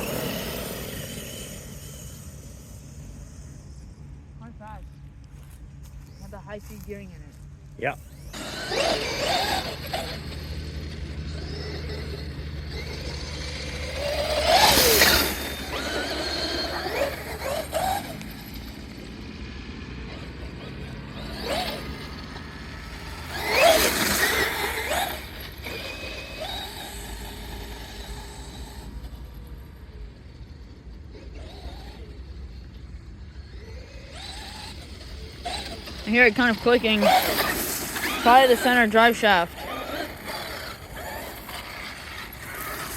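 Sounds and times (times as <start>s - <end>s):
radio-controlled car motor whining: 0.0s - 42.9s
car driving through grass: 5.3s - 29.2s, 33.3s - 42.9s.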